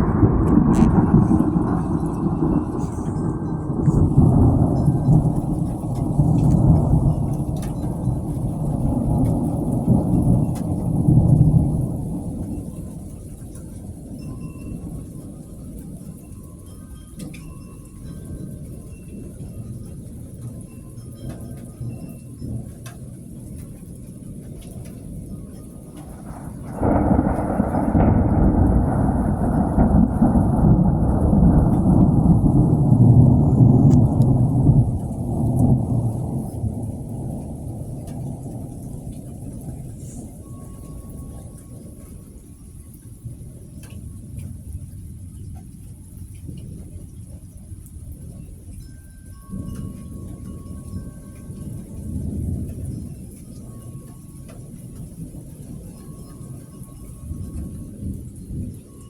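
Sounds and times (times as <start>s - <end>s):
thunder rumbling: 0.0s - 15.6s, 24.3s - 45.7s.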